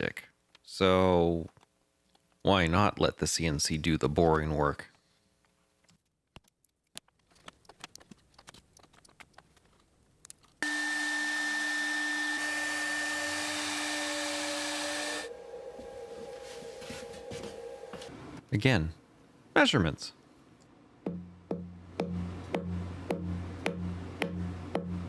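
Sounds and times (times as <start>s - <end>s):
router spindle whining: 10.6s - 18.1s.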